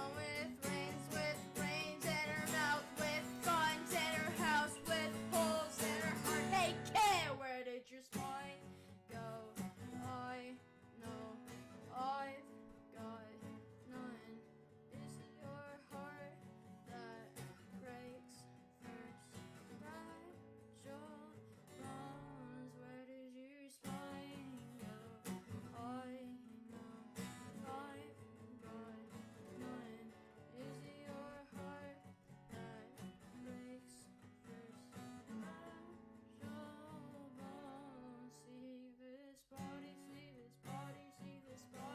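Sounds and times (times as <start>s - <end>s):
acoustic guitar music: 0.0s - 7.5s, 8.1s - 22.9s, 23.8s - 38.8s, 39.6s - 41.9s.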